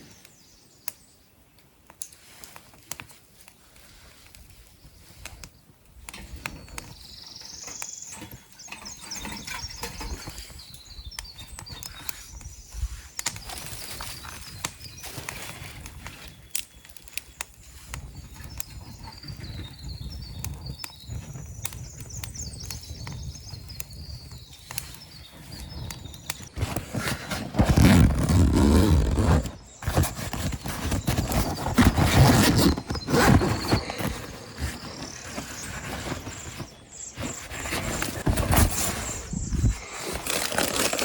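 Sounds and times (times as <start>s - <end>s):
small bird singing trills: 6.6s - 15.2s, 18.1s - 26.5s
low rumble of wind: 17.7s - 39.8s.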